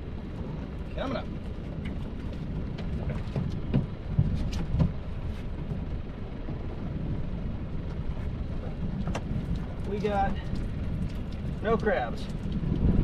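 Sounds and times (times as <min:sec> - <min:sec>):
low rumble: 0:00.0 - 0:13.0
trap knocks and thumps: 0:01.8 - 0:05.8.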